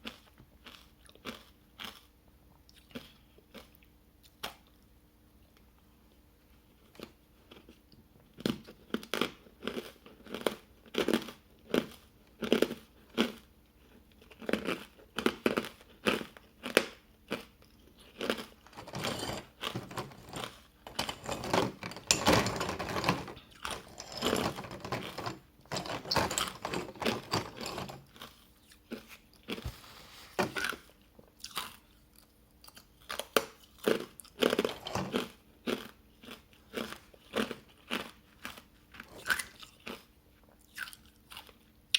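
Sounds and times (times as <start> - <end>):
chewing ice crunches: 0.0 - 2.1.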